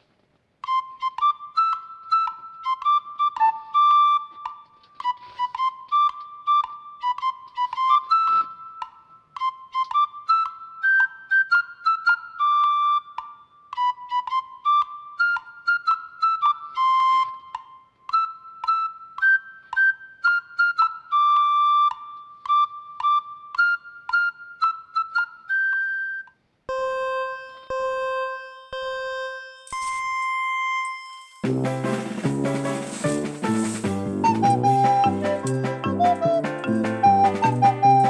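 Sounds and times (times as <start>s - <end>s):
music with held tones: 0.6s - 38.0s
fast melody of high notes: 29.7s - 38.0s.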